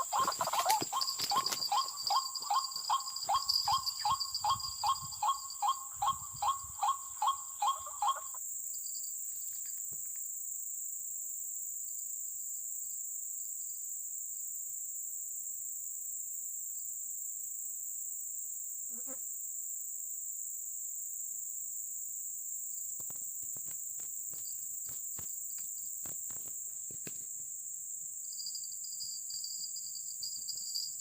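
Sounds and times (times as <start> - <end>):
waterhen call: 0.0 - 8.4
insects buzzing: 0.0 - 10.3, 22.8 - 31.0.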